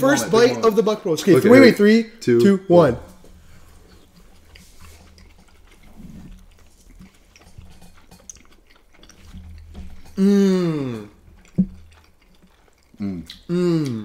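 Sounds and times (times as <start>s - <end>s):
chewing mouth noises: 3.1s - 14.0s.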